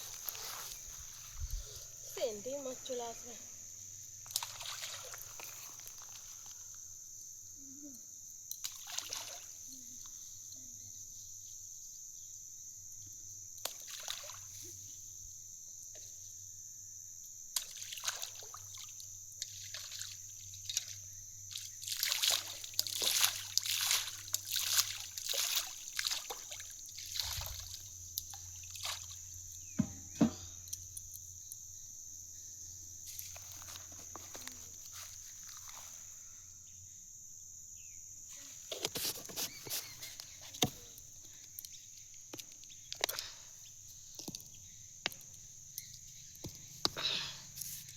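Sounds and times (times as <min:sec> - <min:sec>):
water splashing and sloshing: 0:00.0 - 0:02.4, 0:04.2 - 0:06.6, 0:08.6 - 0:09.7, 0:13.6 - 0:14.8, 0:17.6 - 0:29.4.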